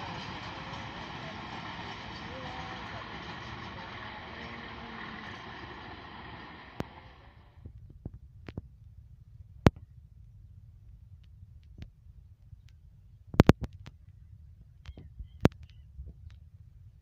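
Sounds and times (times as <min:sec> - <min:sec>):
distant train approaching: 0:00.0 - 0:07.6
low rumble: 0:00.0 - 0:11.5.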